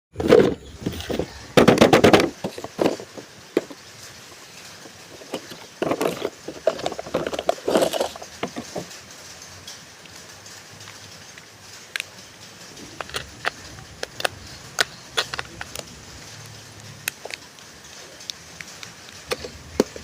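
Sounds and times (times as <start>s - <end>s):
small clicks and knocks: 0.2s - 20.0s
packaging crinkling and rustling: 4.8s - 8.9s, 12.8s - 20.0s.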